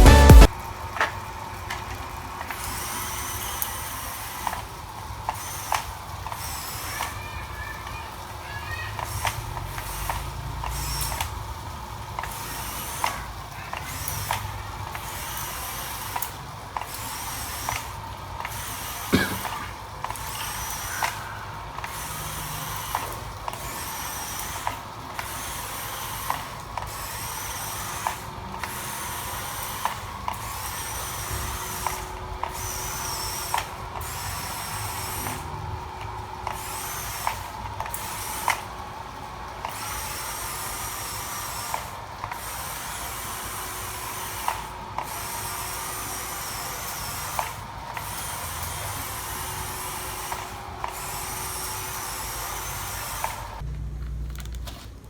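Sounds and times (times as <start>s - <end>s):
small electric motor whining: 0.0s - 53.7s.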